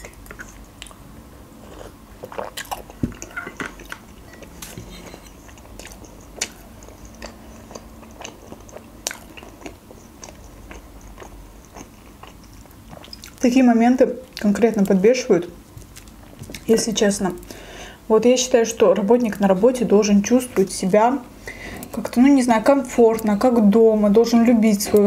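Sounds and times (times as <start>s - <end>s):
chewing: 0.0s - 1.0s, 1.6s - 13.4s, 15.8s - 16.8s.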